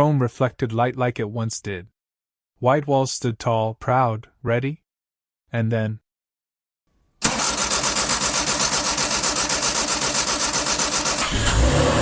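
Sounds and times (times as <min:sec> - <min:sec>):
car engine running: 0:07.2 - 0:11.8.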